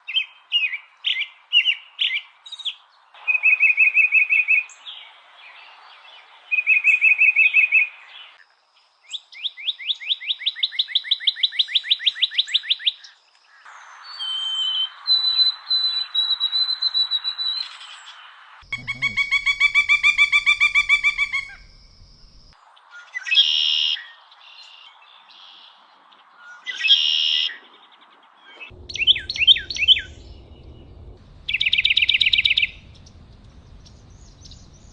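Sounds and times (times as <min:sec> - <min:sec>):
bird songs and calls: 0:00.0 - 0:34.9
background hiss: 0:17.6 - 0:22.8.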